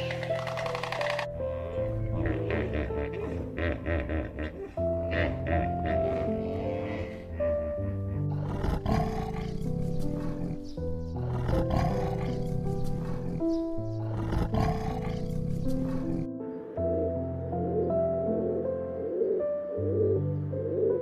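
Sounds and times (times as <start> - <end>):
big cat calling: 0.0 - 16.3
background music: 0.0 - 21.0.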